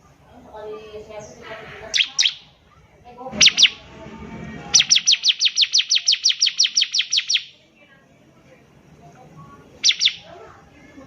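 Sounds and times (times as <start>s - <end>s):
bird singing descending notes: 1.9s - 2.5s, 3.4s - 7.5s, 9.8s - 10.4s.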